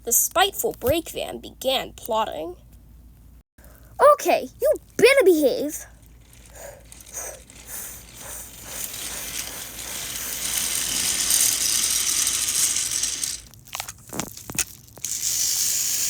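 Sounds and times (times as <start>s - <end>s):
toy train rattling whir: 5.3s - 16.0s.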